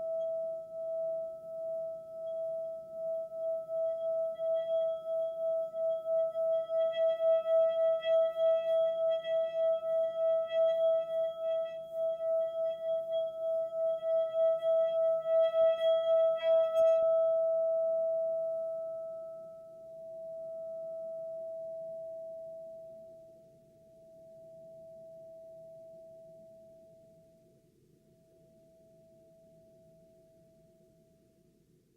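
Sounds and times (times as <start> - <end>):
sustained ringing tone: 0.0 - 23.0.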